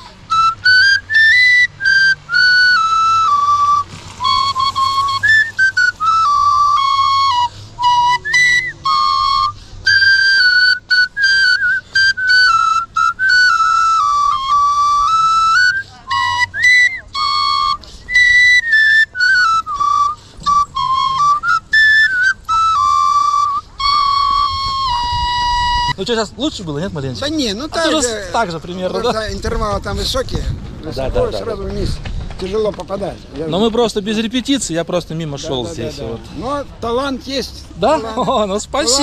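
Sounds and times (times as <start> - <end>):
man whistling: 0.0 - 26.0
folk flute melody: 0.0 - 26.6, 37.8 - 39.0.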